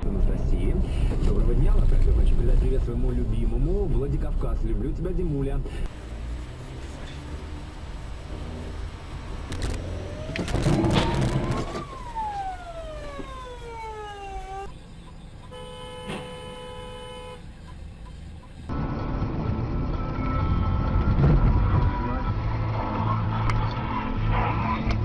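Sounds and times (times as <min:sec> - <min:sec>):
road traffic: 0:00.0 - 0:25.0
siren wailing: 0:09.8 - 0:16.6
car horn: 0:15.4 - 0:18.2.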